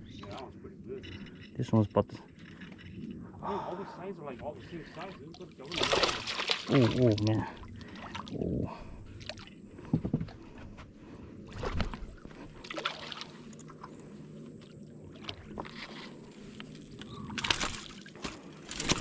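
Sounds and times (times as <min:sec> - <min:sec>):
faint low hum: 0:00.0 - 0:19.0
water splashing around boat: 0:04.7 - 0:10.5, 0:11.4 - 0:19.0.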